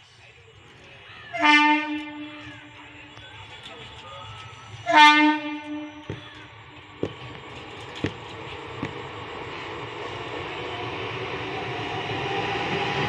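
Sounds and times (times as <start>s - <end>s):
train running noise: 0.0s - 13.0s
train horn: 1.3s - 3.0s, 4.8s - 6.2s.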